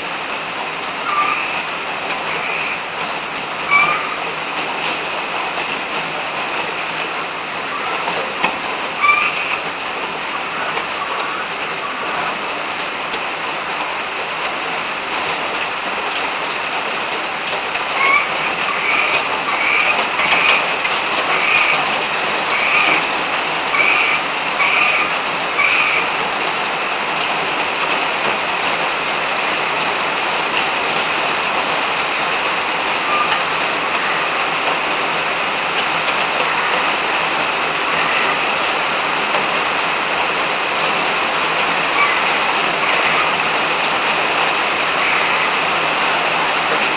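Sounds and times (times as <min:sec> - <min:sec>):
steady rain falling: 0:00.0 - 0:46.9
frogs calling: 0:01.0 - 0:02.8, 0:03.7 - 0:04.3, 0:09.0 - 0:09.7, 0:17.9 - 0:26.2, 0:33.0 - 0:34.5, 0:37.9 - 0:38.5, 0:41.8 - 0:43.6, 0:44.8 - 0:45.8.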